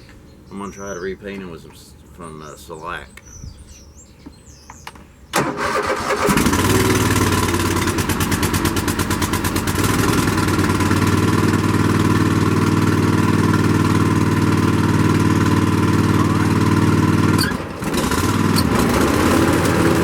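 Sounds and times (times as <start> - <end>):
mower engine cranking and running: 5.4 - 20.0.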